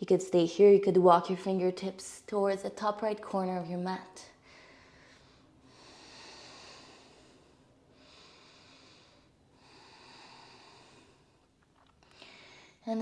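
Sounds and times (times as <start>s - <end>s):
faint slow human breathing: 4.4s - 12.8s.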